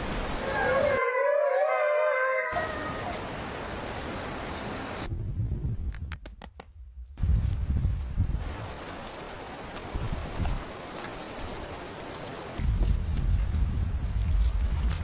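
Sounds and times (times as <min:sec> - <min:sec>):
animal wavering call: 0:00.4 - 0:03.2.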